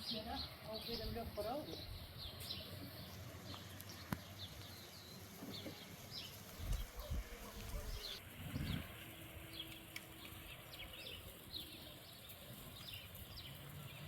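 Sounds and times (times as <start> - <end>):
small birds chirping: 0.0 - 14.0
wind buffeting microphone: 6.5 - 9.6.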